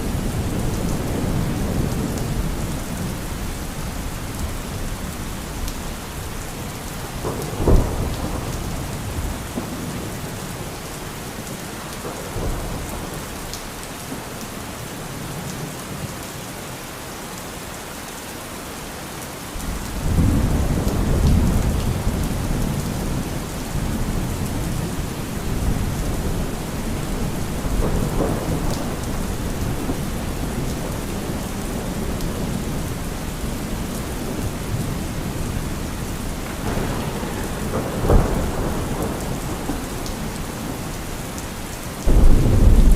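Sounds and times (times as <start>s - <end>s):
rolling thunder: 0.0s - 10.7s, 19.6s - 42.9s
steady rain: 0.0s - 42.9s.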